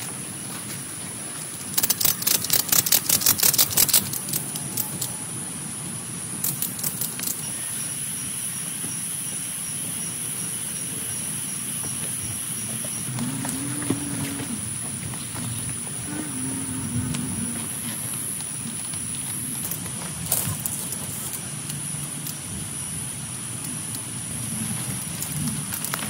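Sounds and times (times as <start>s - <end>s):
heavy rain on a tent: 13.2s - 26.0s.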